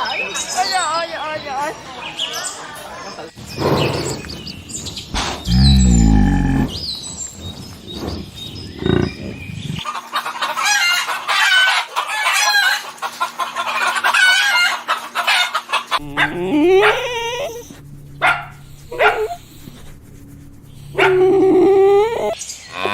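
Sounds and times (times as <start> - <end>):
chickens clucking: 20.9 - 22.4.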